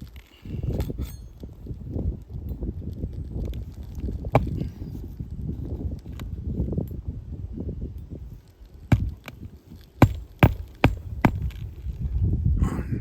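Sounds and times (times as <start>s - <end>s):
hammer driving nails into shingles: 8.9s - 9.4s, 10.0s - 11.6s.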